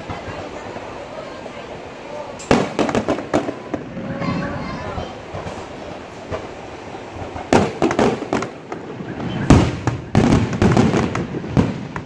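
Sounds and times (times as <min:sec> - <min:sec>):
fireworks shells bursting: 0:02.3 - 0:04.4.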